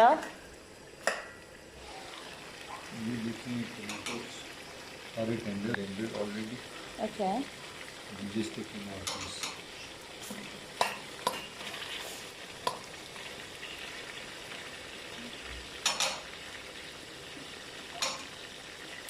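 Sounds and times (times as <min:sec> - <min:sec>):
food sizzling in oil: 0:00.0 - 0:19.0.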